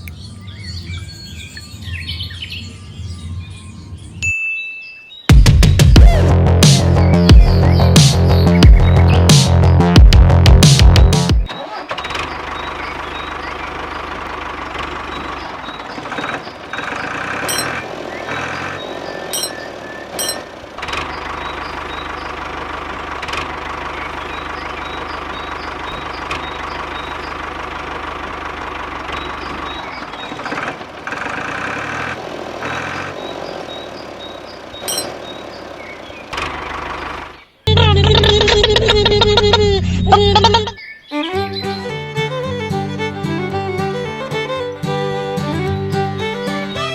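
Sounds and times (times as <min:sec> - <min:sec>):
tractor engine running: 0:05.4 - 0:40.8
short high beeps: 0:34.9 - 0:35.1.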